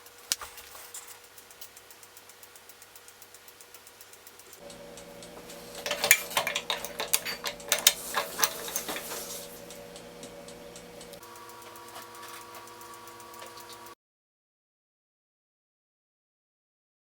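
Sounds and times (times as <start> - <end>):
metallic clinks and clicks: 0.0 - 13.9
faint steady hum: 1.4 - 14.0.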